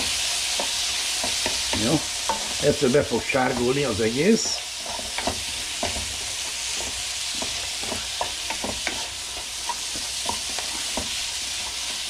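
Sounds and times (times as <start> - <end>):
food sizzling in a pot: 0.0 - 12.0
utensil scraping a pot: 0.0 - 12.0.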